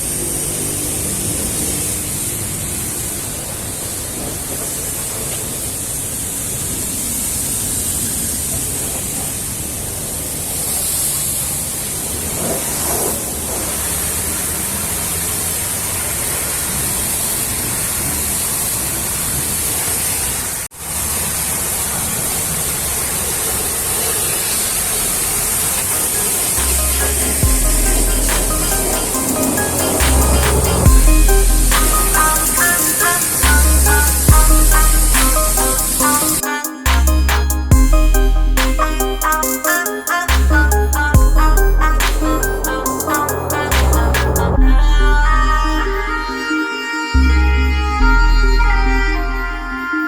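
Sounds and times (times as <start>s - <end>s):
pressure washer spraying water: 23.5s - 41.2s.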